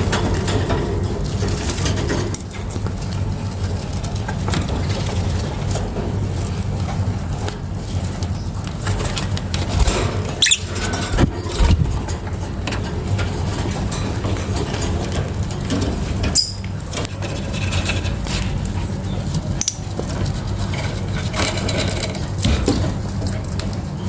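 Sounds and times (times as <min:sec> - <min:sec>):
lovebird chirps: 0:10.4 - 0:10.8.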